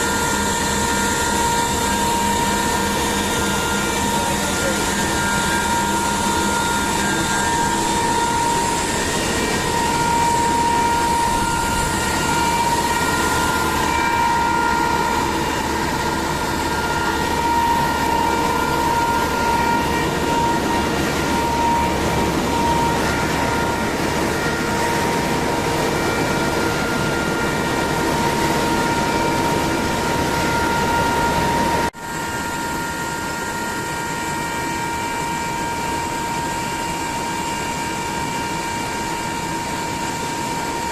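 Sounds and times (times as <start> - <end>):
machinery whining: 0.0 - 40.9.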